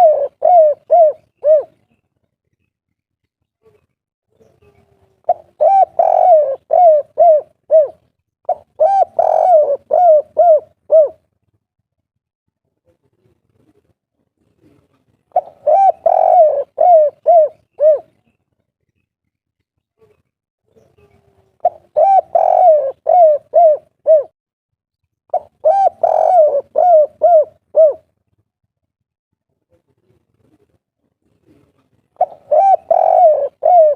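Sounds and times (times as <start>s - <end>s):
dove cooing: 0.0s - 1.9s, 4.4s - 11.2s, 14.6s - 18.3s, 21.0s - 24.3s, 25.3s - 28.1s, 31.4s - 33.9s.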